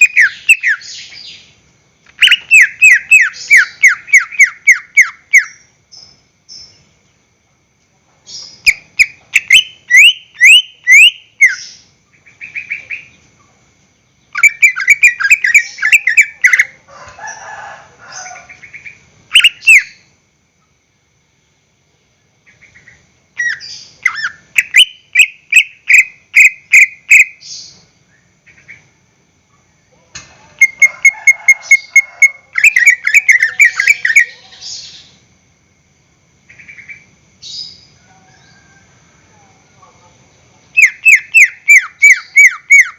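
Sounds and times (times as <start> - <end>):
bird chirping rapidly: 0.0 - 6.9, 8.3 - 13.2, 14.1 - 16.8, 18.2 - 20.1, 22.5 - 27.8, 32.6 - 35.1, 40.7 - 42.9.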